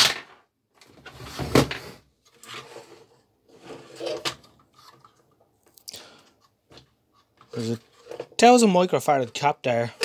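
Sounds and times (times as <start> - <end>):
plastic handling knock and rustle: 6.4 - 8.4.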